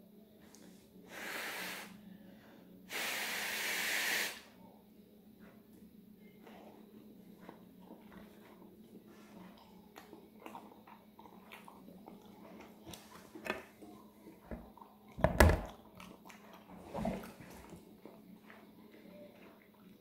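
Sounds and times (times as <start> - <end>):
chewing: 5.4 - 20.0.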